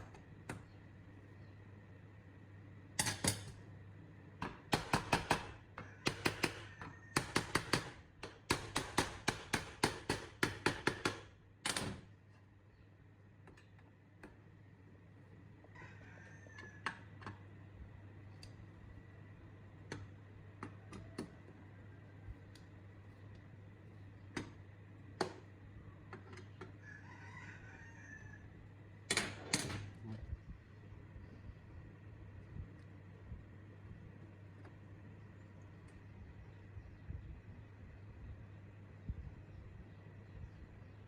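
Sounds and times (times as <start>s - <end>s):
steady low hum: 16.7s - 41.0s.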